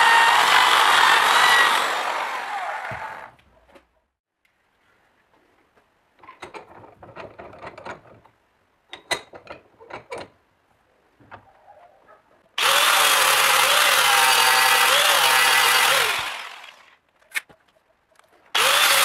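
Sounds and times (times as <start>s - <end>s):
electric power tool running: 0.0s - 3.3s, 12.6s - 16.9s, 18.6s - 19.0s
tools and metal clicking: 6.2s - 10.4s.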